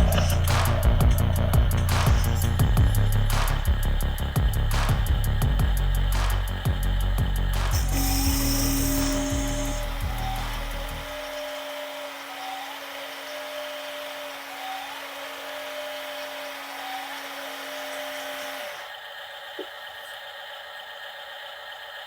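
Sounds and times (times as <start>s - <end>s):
toy electric motor whining: 0.0s - 2.8s, 7.7s - 19.6s.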